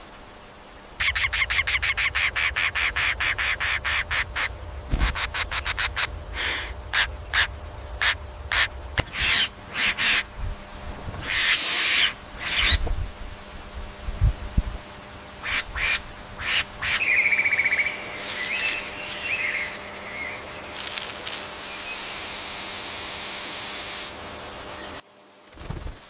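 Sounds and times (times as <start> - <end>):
high hiss: 0.0 - 14.8, 15.4 - 25.0
bird calling and trilling: 1.0 - 10.4, 11.2 - 12.8.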